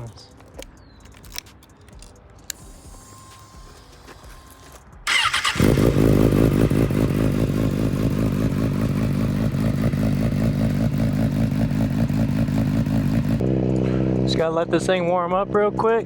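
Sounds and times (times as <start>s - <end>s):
motorcycle engine fast idle: 5.1s - 13.4s
motorcycle engine starting: 5.1s - 14.4s.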